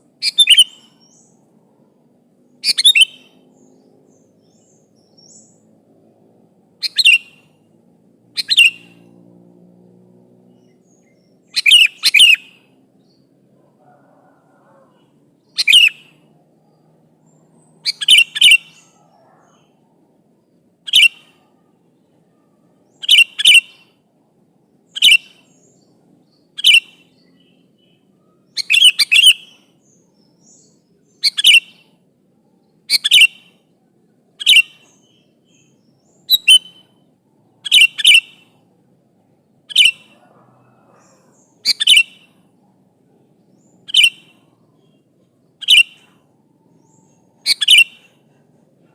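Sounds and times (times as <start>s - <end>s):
bulbul calling: 0.2s - 1.4s, 2.5s - 5.6s, 6.8s - 7.7s, 8.3s - 9.1s, 10.5s - 16.3s, 17.3s - 19.8s, 20.9s - 21.6s, 22.8s - 24.0s, 24.9s - 32.0s, 32.7s - 33.6s, 34.4s - 38.7s, 39.6s - 42.6s, 43.2s - 48.9s.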